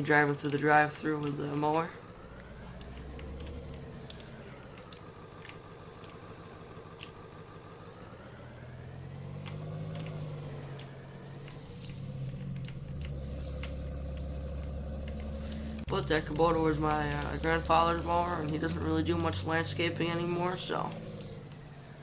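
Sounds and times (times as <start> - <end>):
truck engine running: 0.0 - 22.0
clicks and rattles: 9.4 - 17.4.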